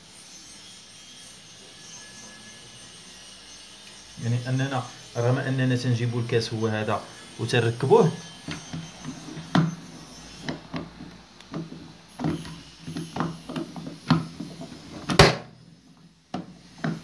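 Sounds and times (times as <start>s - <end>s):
portafilter clicks and knocks: 15.0s - 15.5s.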